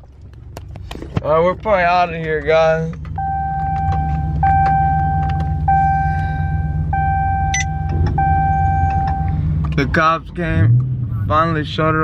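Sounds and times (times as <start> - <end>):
car engine idling: 0.0 - 12.0
electronic warning chime: 3.2 - 9.3.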